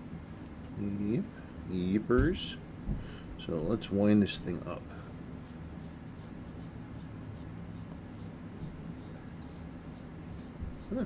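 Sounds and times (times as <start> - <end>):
faint low hum: 0.0 - 11.0
watch ratchet clicking: 5.0 - 11.0.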